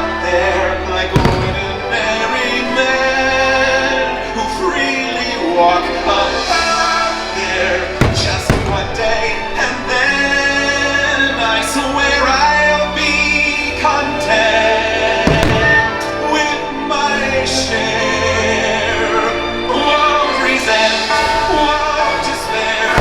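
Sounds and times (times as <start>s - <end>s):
choir singing: 0.0s - 23.0s
orchestral music: 0.0s - 23.0s
deep bang: 1.2s - 2.8s, 8.0s - 10.2s, 15.3s - 16.5s.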